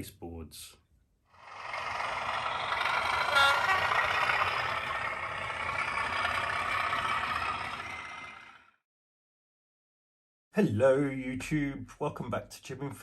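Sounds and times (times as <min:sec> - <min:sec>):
diesel locomotive engine running: 0:01.4 - 0:08.8
brief tone: 0:03.0 - 0:04.9.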